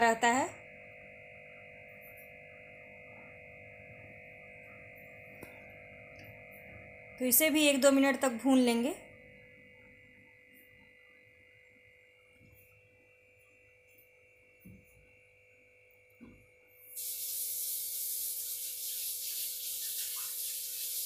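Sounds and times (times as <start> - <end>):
faint steady hum: 0.0 - 21.0
loud oil sizzle: 16.9 - 21.0.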